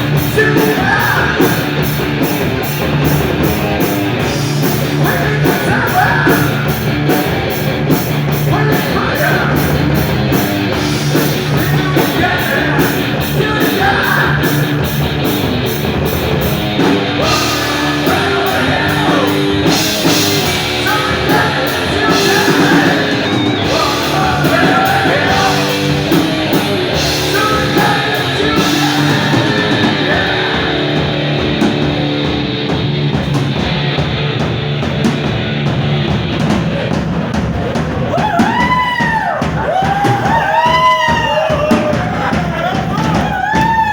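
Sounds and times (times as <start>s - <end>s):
distorted electric guitar: 0.0s - 38.7s
bass guitar: 0.0s - 43.9s
drums: 0.0s - 43.9s
person singing: 0.1s - 1.8s, 4.7s - 6.9s, 8.4s - 9.8s, 11.1s - 14.9s, 17.2s - 31.1s.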